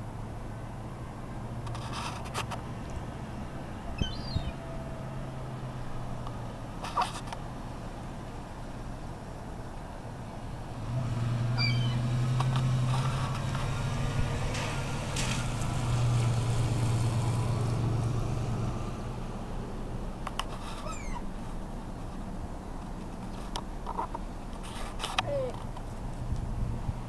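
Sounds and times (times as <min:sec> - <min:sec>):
vehicle engine humming: 0:00.0 - 0:27.0
gulls calling: 0:04.0 - 0:04.8, 0:11.6 - 0:12.1, 0:20.8 - 0:21.3.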